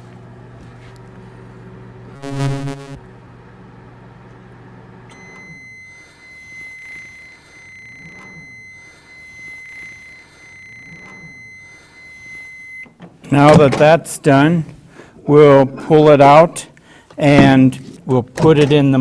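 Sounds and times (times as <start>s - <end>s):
microwave oven humming: 0.0s - 12.9s
harsh buzz: 2.2s - 3.0s
high-pitched electronic tone: 2.2s - 3.0s.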